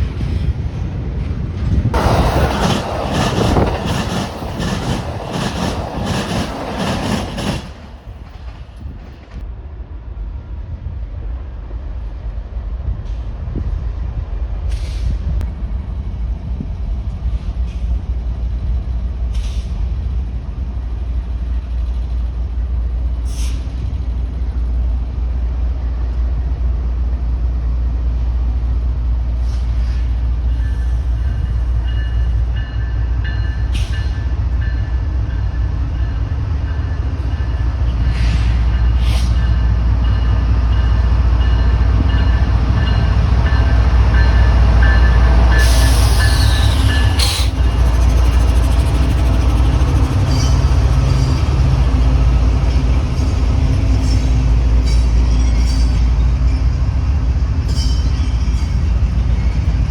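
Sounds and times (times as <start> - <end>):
freight train rumbling: 0.0 - 59.9
wheels squealing: 43.1 - 56.7.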